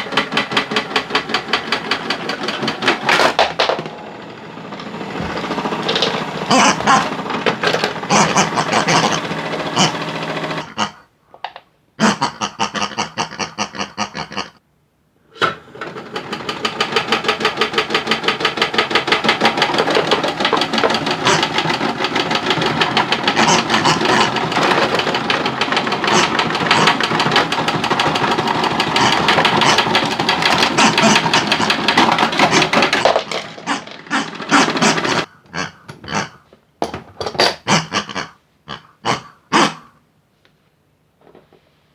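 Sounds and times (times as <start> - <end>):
fast mechanical rattle: 0.0 - 10.7, 15.4 - 35.3.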